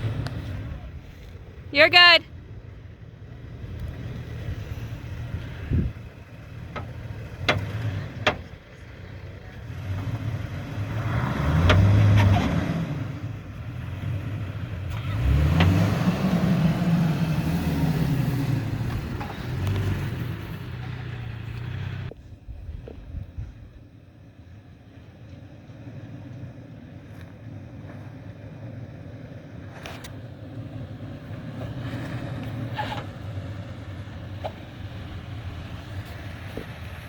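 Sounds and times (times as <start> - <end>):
pickup engine revving: 0.0 - 1.3, 3.3 - 22.1.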